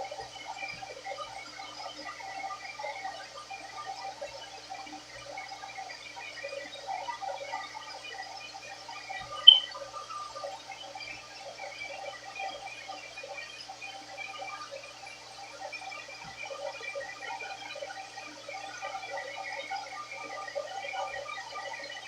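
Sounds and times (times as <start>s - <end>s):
sharp high-pitched click: 9.4s - 9.7s.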